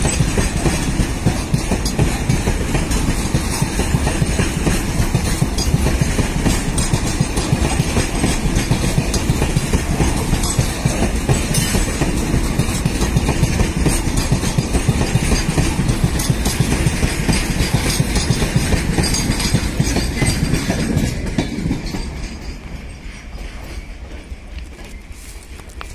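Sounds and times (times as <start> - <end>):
freight train wheels clattering: 0.0 - 25.9.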